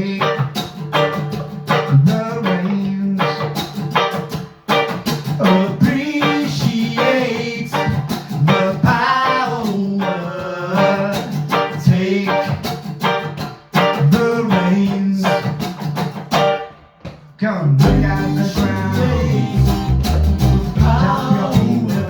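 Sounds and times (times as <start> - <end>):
person singing: 0.0 - 0.8, 1.7 - 3.6, 5.4 - 12.9, 13.8 - 15.7, 17.4 - 22.0
guitar strumming: 0.0 - 17.1, 17.8 - 22.0.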